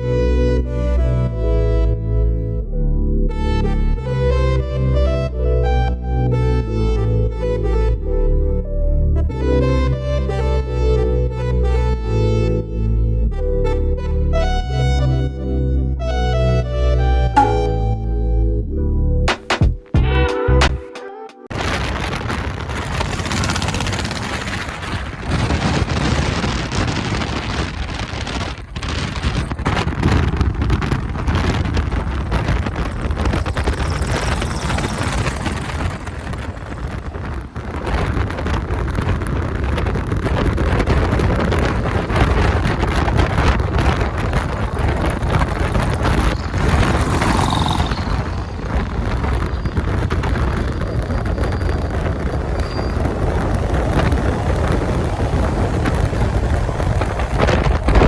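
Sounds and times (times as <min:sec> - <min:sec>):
wind buffeting microphone: 0:21.5 - 0:58.0
vehicle moving: 0:21.8 - 0:26.0, 0:29.9 - 0:58.0.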